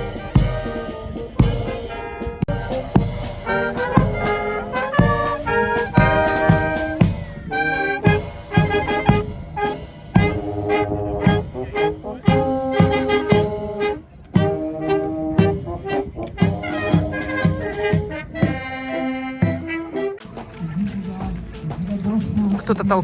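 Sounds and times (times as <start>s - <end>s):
drum beat: 0.0s - 13.7s, 14.4s - 15.7s, 16.4s - 18.7s
brass band playing: 0.0s - 20.3s.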